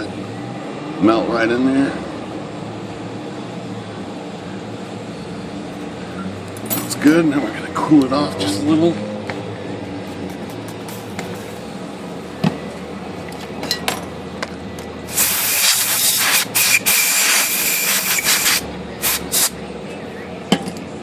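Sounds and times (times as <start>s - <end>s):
compressed air spray hissing: 15.1s - 19.6s.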